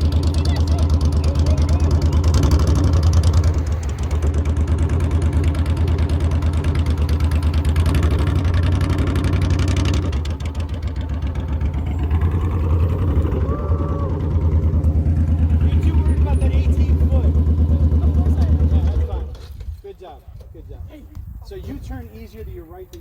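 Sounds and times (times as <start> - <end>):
motorcycle engine idling: 0.0 - 19.5.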